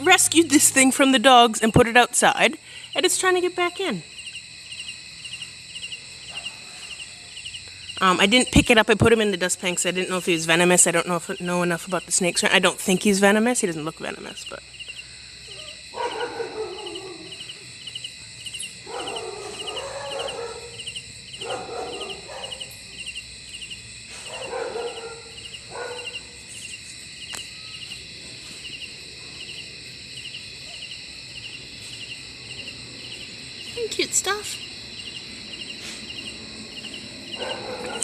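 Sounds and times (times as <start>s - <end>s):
insects chirping: 0.0s - 38.0s
dogs barking: 6.2s - 7.4s, 15.5s - 18.1s, 18.7s - 23.1s, 24.1s - 26.4s, 36.8s - 38.0s.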